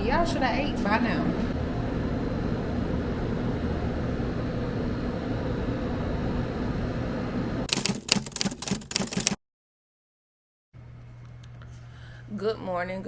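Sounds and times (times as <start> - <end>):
steady low hum: 0.0 - 8.9
sharp clicks and rattles: 7.7 - 9.4.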